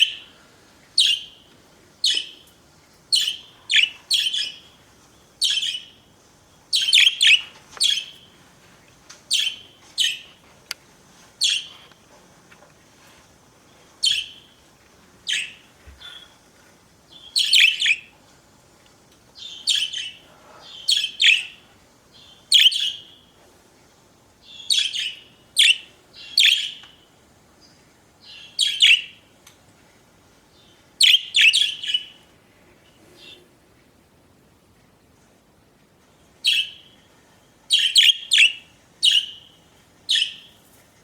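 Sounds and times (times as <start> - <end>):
budgerigars chirping: 1.0 - 1.4, 3.2 - 4.6, 5.4 - 5.9, 6.8 - 8.1, 17.2 - 18.1, 19.4 - 21.6, 22.5 - 23.2, 24.5 - 26.8, 31.0 - 32.2, 37.7 - 39.5, 40.1 - 40.5.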